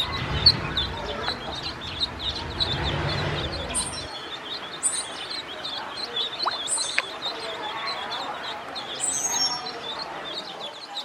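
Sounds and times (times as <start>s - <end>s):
low rumble: 0.0s - 5.2s
ducklings peeping: 0.0s - 11.0s.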